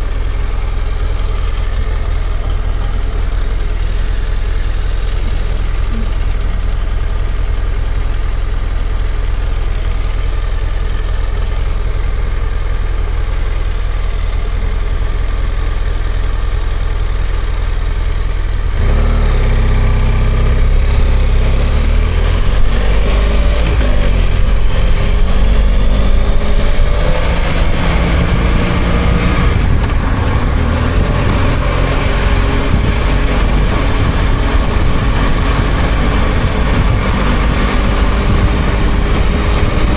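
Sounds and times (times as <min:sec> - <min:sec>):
wind and road noise: 0:00.0 - 0:09.2, 0:17.8 - 0:39.9
motorcycle engine idling and accelerating: 0:00.0 - 0:39.9.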